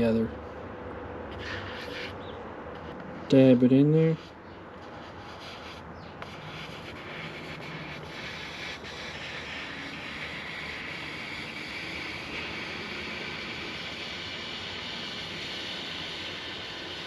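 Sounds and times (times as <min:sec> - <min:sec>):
hot welder tip scraping plastic: 0:04.8 - 0:17.0
steady hiss: 0:05.2 - 0:17.0.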